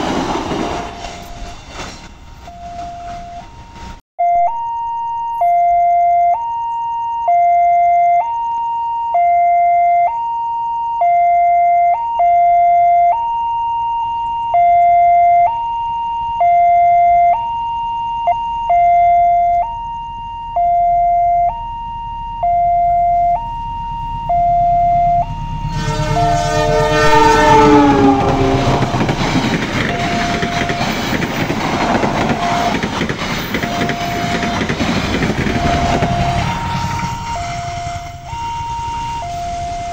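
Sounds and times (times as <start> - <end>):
train rumble: 0.0 - 4.0, 22.8 - 39.9
level crossing two-tone alarm: 2.4 - 39.9
train horn: 24.2 - 34.8, 35.5 - 39.9.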